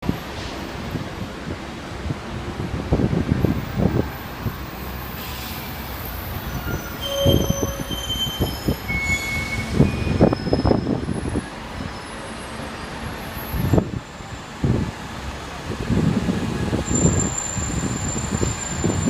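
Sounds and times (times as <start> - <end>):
wind buffeting microphone: 0.0 - 4.8, 5.7 - 12.0, 13.4 - 19.0
thin high-pitched squeals: 6.2 - 10.9.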